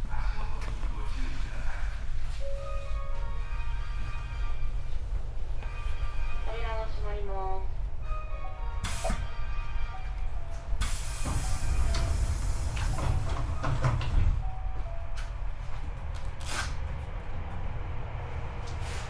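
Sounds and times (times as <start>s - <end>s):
train cabin rumble: 6.4s - 19.0s.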